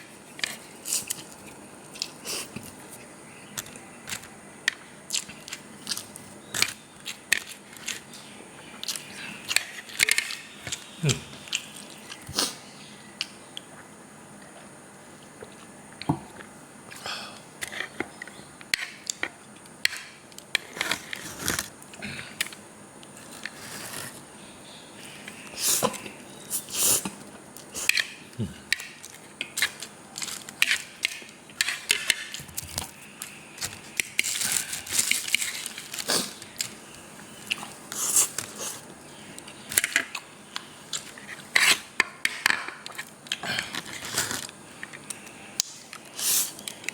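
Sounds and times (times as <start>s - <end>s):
person chewing noodles: 0.1s - 4.3s, 5.1s - 8.1s.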